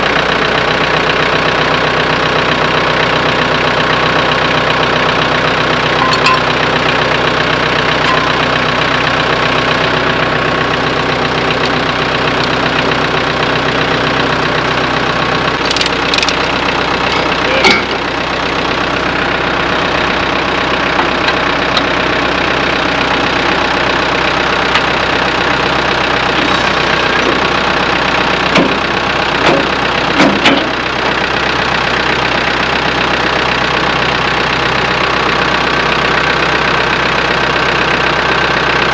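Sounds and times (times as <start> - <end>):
tractor diesel engine idling: 0.0 - 38.9
metallic clanks: 5.9 - 6.6, 8.0 - 8.5, 17.1 - 18.0.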